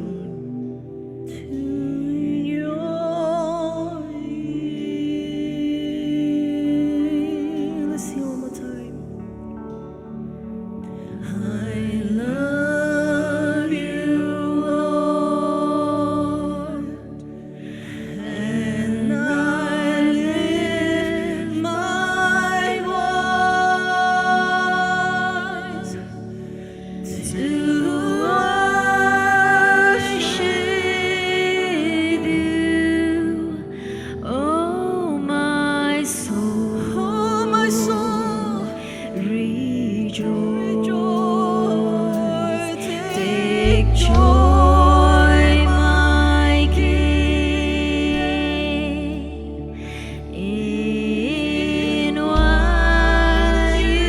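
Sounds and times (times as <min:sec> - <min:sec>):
person singing with vibrato: 0:00.0 - 0:09.3, 0:11.0 - 0:54.0
sustained instrumental accompaniment: 0:37.3 - 0:54.0.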